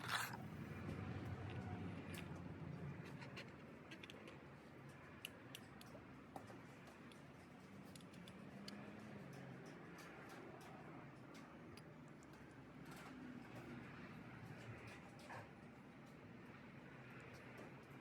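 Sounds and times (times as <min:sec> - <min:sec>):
small clicks and ticks: 0:01.2 - 0:18.0.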